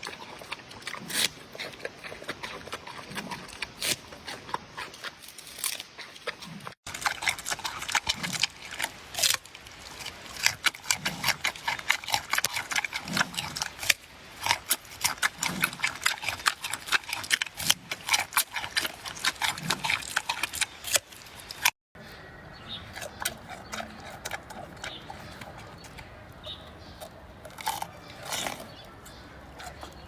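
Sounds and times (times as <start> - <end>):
panda chewing bamboo: 0.0 - 21.8.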